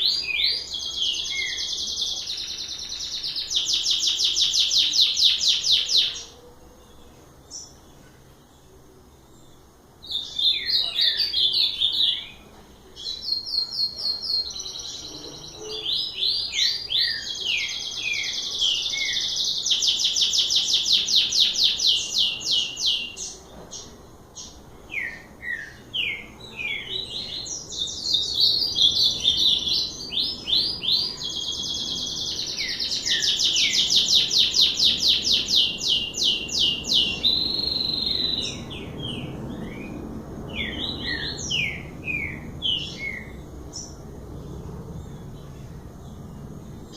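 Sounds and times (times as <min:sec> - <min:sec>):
songbird singing: 0:00.0 - 0:46.9.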